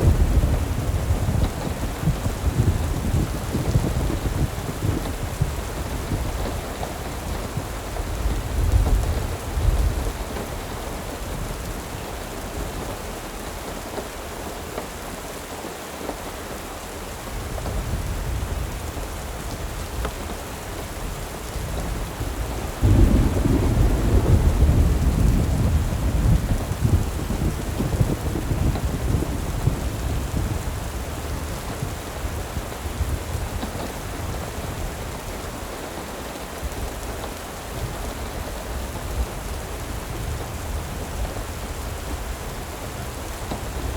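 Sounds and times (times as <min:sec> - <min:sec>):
rolling thunder rumbling: 0:00.0 - 0:14.4, 0:17.3 - 0:35.5
steady rain: 0:00.0 - 0:43.9.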